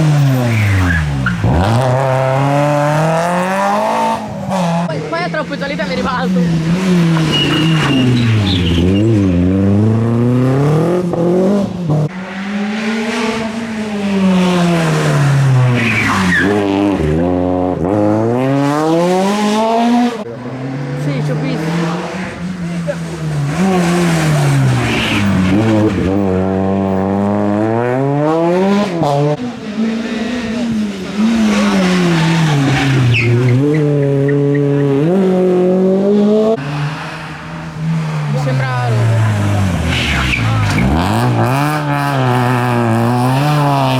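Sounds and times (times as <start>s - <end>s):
rally car engine revving: 0.0s - 43.9s
tyre squeal: 6.4s - 9.3s, 15.8s - 16.7s, 31.4s - 34.9s, 39.8s - 41.2s.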